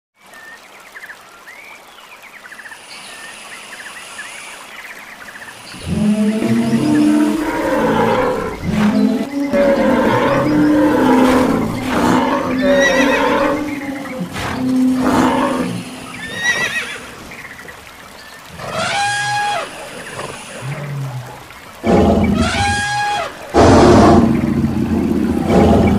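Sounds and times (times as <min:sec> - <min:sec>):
high animal call: 0:05.7 - 0:17.2, 0:18.6 - 0:20.7, 0:21.8 - 0:24.0
low animal calls: 0:05.7 - 0:17.2, 0:18.4 - 0:25.9
horse whinnies: 0:16.2 - 0:17.1.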